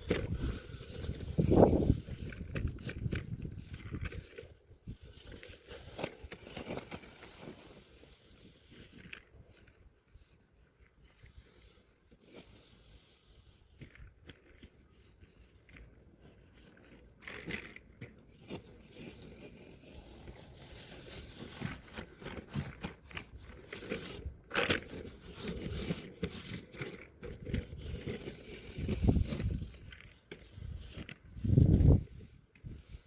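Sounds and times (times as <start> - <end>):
snow shovel scraping: 0.0 - 9.8, 18.5 - 33.0.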